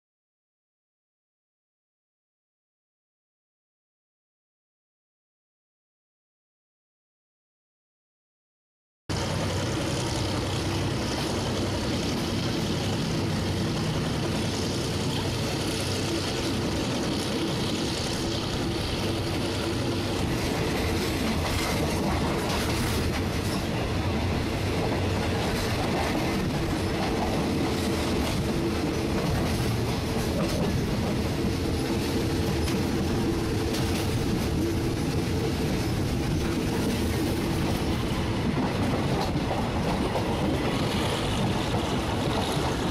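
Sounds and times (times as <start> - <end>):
train wheel and rail noise: 9.1 - 42.9.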